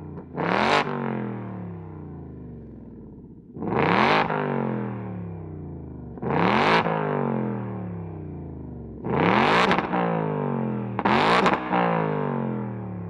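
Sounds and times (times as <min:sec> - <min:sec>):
car engine revving: 0:00.2 - 0:01.4, 0:03.6 - 0:04.6, 0:06.2 - 0:06.9, 0:09.0 - 0:10.1.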